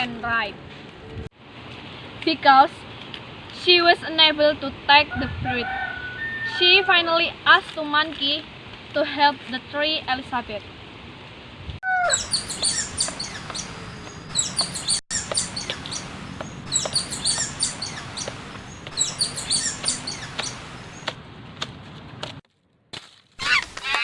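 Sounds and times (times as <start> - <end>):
small birds chirping: 11.8 - 21.2.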